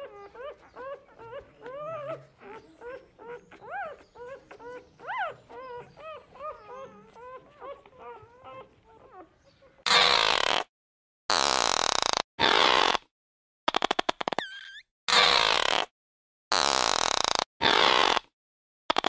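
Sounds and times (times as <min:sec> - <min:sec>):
civet whining mews: 0:00.0 - 0:10.3.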